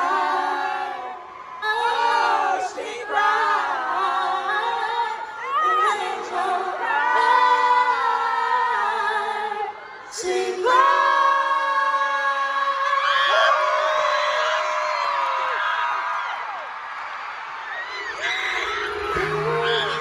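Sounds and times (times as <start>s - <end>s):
backing voices in harmony: 0.0s - 13.6s, 17.8s - 20.0s
woman singing lead: 0.0s - 13.8s, 18.0s - 20.0s.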